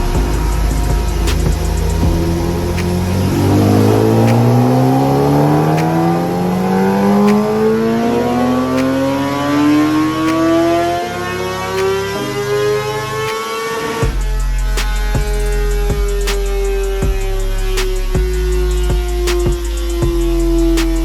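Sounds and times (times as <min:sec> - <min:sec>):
background music with a beat: 0:00.0 - 0:11.1, 0:13.2 - 0:21.0
motorcycle engine revving: 0:00.0 - 0:21.0.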